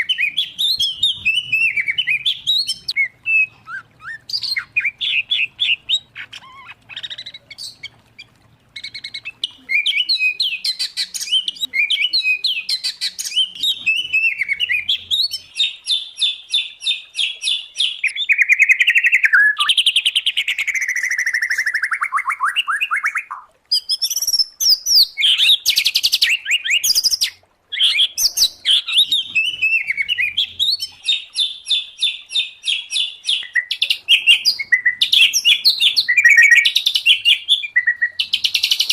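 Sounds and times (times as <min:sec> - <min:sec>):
songbirds whistling and trilling: 0:00.0 - 0:38.9.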